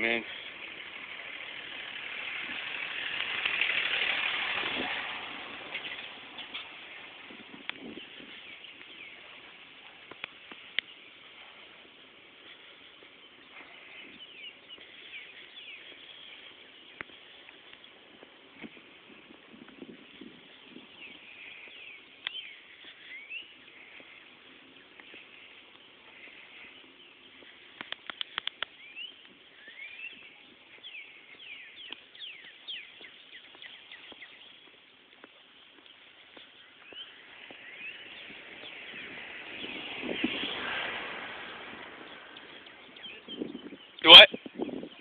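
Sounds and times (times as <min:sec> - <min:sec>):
birds chirping: 0:00.0 - 0:45.0
sharp clicks: 0:27.8 - 0:28.8.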